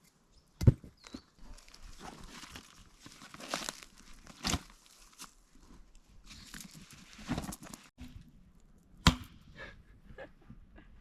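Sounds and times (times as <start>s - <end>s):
rustling and crinkling: 1.0s - 8.0s.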